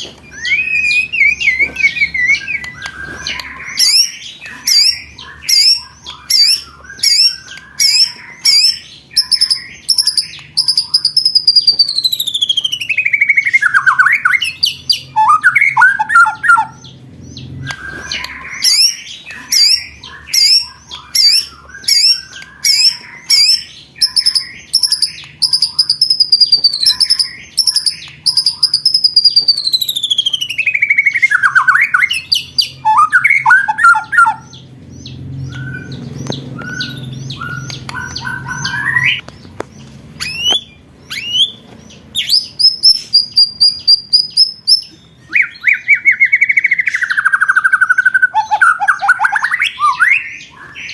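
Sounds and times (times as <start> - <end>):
falling bird whistle: 0.3 - 16.8, 17.6 - 34.5.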